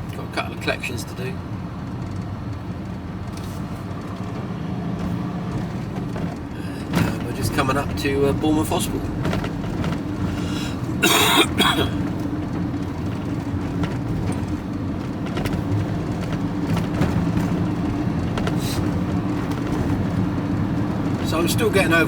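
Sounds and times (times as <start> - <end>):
road noise: 0.0 - 22.0
vehicle engine drone: 0.0 - 22.0
person coughing: 11.0 - 12.1.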